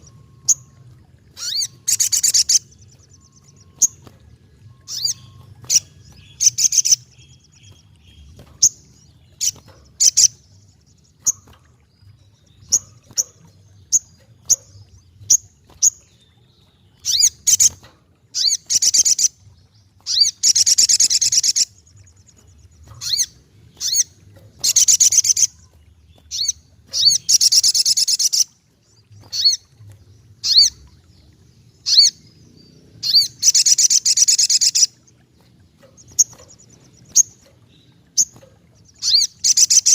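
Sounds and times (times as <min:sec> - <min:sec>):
bird high chirps: 0:01.4 - 0:10.4, 0:22.4 - 0:28.5, 0:31.8 - 0:32.3, 0:33.0 - 0:35.1, 0:35.8 - 0:39.9.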